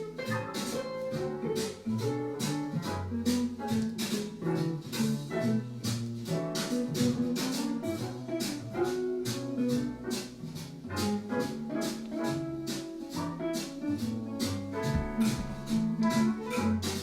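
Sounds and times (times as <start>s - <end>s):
instrumental music with steady beat: 0.0s - 17.0s.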